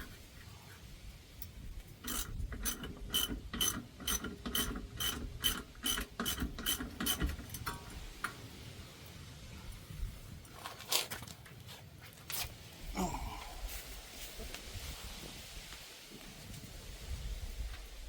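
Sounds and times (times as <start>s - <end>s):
ratchet clicking: 2.0s - 7.8s.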